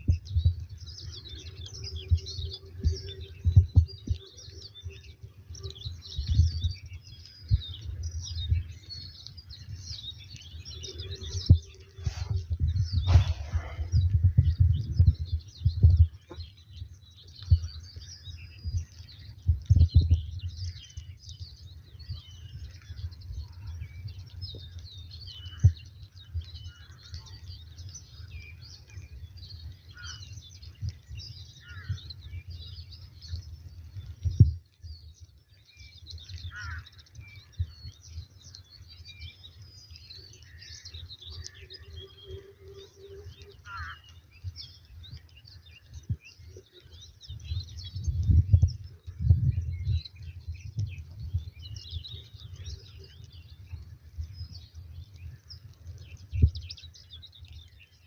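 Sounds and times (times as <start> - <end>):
low rumbling: 0.0 - 27.0
small birds chirping: 0.0 - 58.0.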